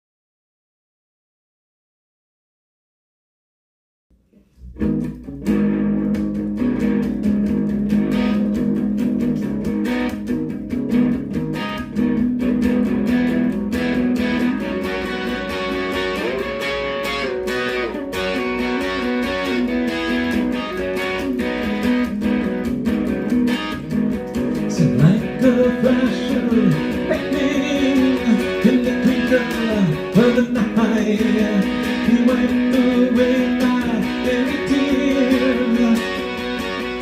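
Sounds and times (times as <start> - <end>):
guitar strumming: 4.3 - 37.0
person singing: 24.6 - 37.0.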